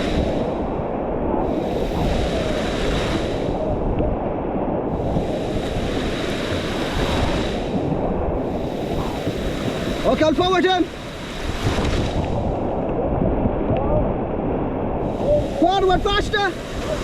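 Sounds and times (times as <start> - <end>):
river water rushing: 5.0 - 13.2, 14.3 - 17.0.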